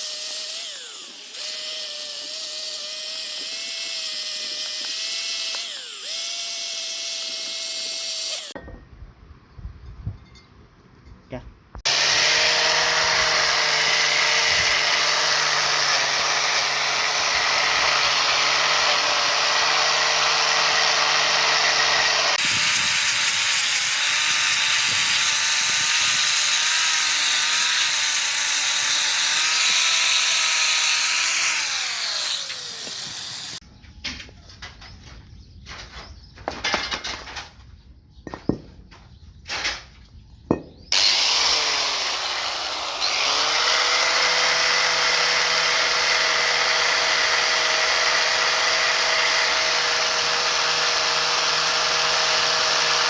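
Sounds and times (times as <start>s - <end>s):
power tool motor whine: 0.0s - 8.6s, 11.9s - 33.6s, 40.9s - 53.0s.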